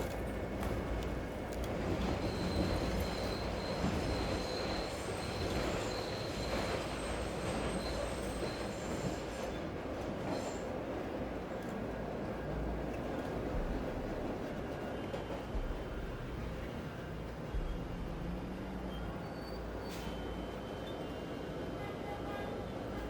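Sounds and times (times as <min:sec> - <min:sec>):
train rumbling on rails: 0:00.0 - 0:23.0
high wheel squeal: 0:02.2 - 0:09.6, 0:18.9 - 0:21.3.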